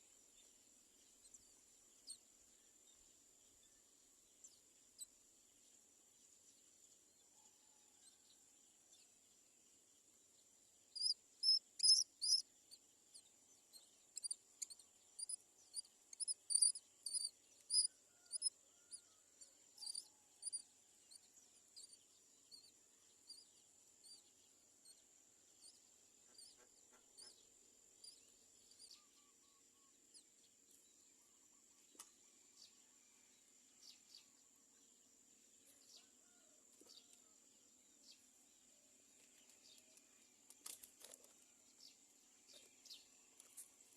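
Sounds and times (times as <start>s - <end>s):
bird chicks high-pitched cries: 11.0s - 12.4s.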